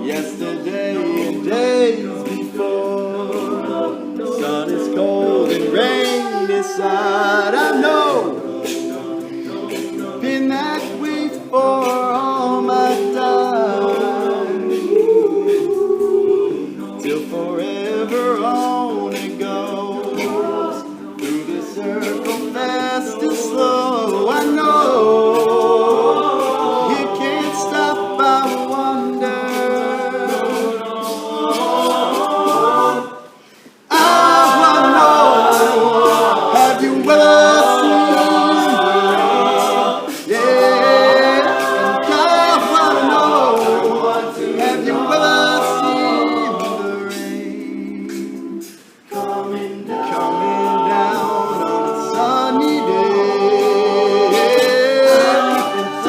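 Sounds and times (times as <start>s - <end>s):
male a cappella group singing: 0.0s - 56.0s.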